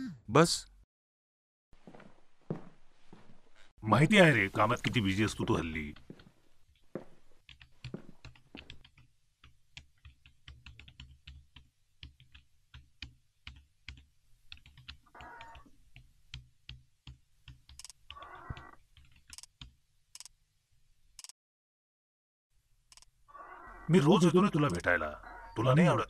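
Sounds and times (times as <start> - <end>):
laptop keyboard typing: 7.5 - 20.3.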